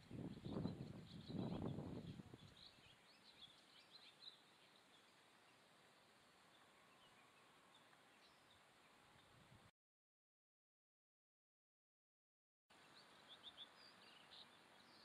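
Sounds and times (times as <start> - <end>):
faint high bird chirps: 0.0 - 5.7, 6.4 - 9.4, 12.8 - 15.0.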